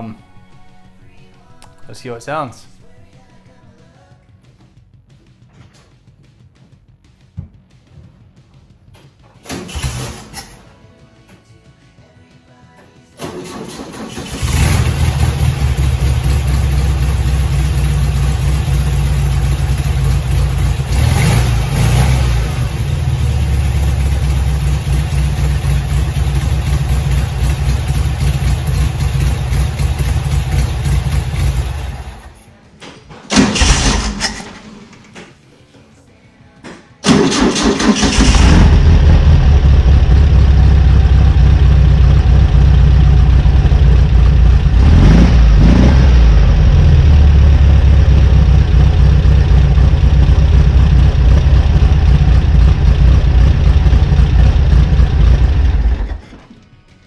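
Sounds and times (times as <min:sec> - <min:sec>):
car engine running: 0:14.3 - 0:32.3, 0:37.5 - 0:56.4.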